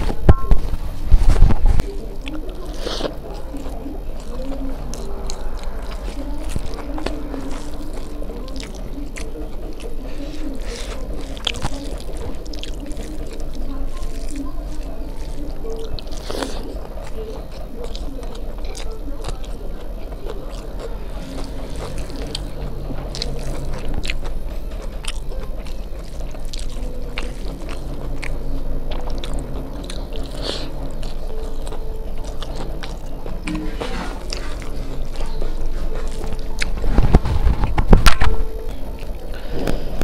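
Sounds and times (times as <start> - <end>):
wet chewing and mouth smacks: 1.4 - 39.8.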